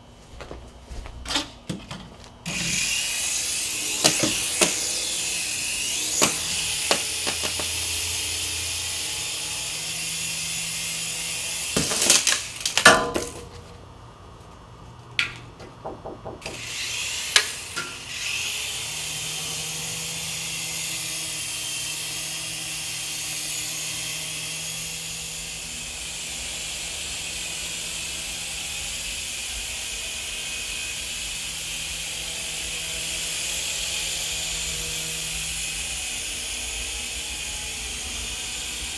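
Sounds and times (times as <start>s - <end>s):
toy helicopter rotors whirring: 2.4s - 12.8s, 16.6s - 38.9s
sharp knocks: 15.2s - 16.8s.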